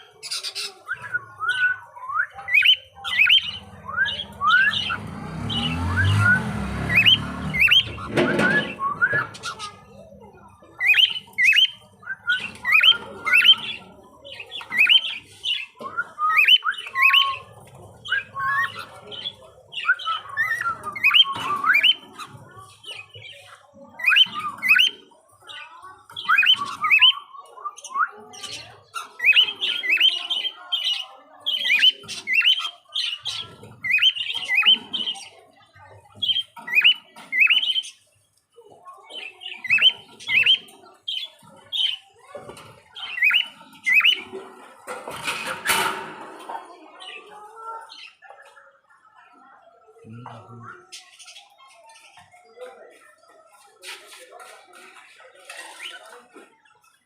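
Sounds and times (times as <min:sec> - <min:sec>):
budgerigars chirping and squawking: 0:00.0 - 0:57.0.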